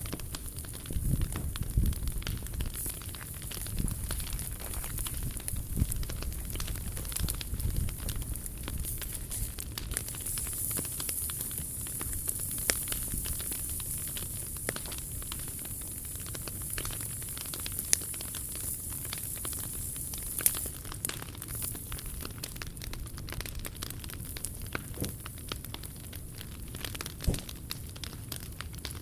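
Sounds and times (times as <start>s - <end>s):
wood fire hissing and crackling: 0.0s - 29.0s
sharp pops: 24.3s - 25.4s, 26.8s - 27.9s.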